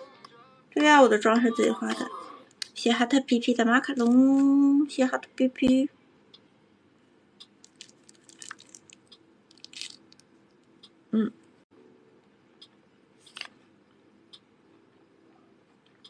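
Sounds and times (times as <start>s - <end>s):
person chewing juicy fruit: 7.6s - 10.3s.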